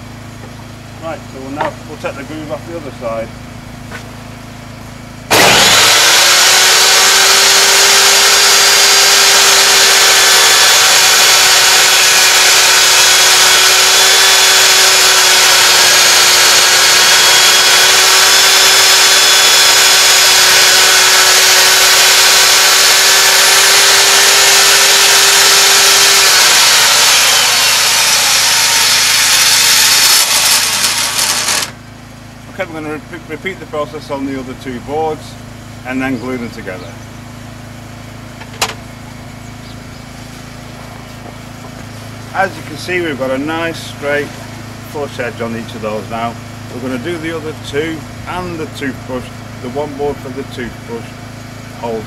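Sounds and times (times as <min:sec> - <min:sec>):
saw blade spinning down: 0:05.3 - 0:31.8
table saw running: 0:05.3 - 0:31.8.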